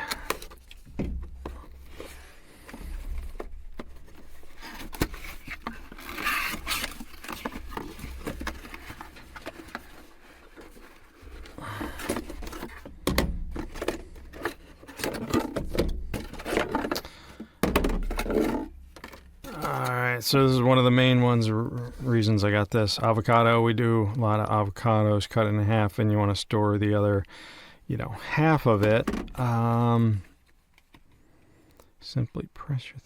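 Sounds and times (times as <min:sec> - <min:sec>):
rustling: 0:00.0 - 0:17.0
plastic containers scraping: 0:00.0 - 0:22.6.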